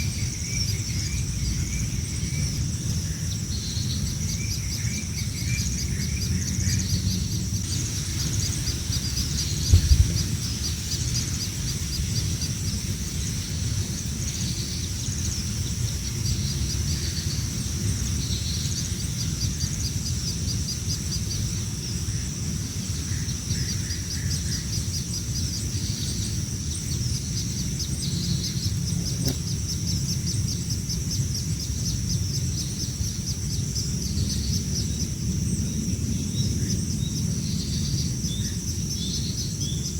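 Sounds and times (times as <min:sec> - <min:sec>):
baby birds chirping: 0:05.3 - 0:19.0.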